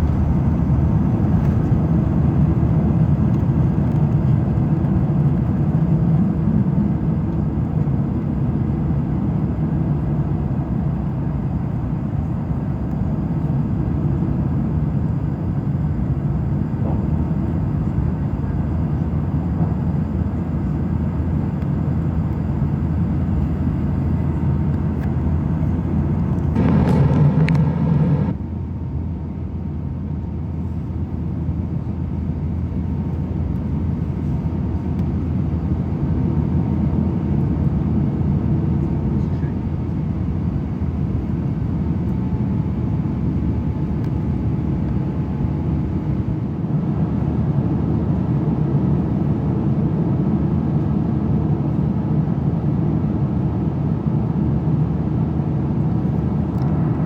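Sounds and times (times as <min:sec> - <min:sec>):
airliner cabin engine rumble: 0:00.0 - 0:57.0
brief loud noise: 0:26.6 - 0:28.4.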